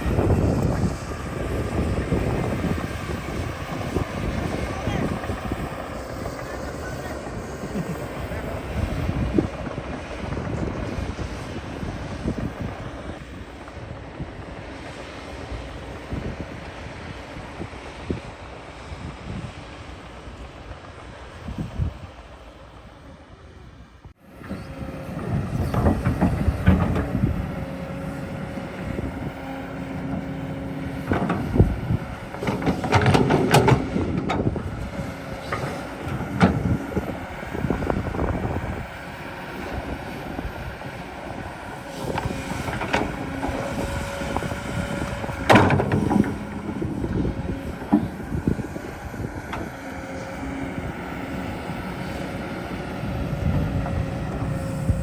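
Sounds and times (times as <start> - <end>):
excavator engine hum: 0.0 - 55.0
digging clanks and scraping: 25.0 - 37.8, 44.6 - 50.4.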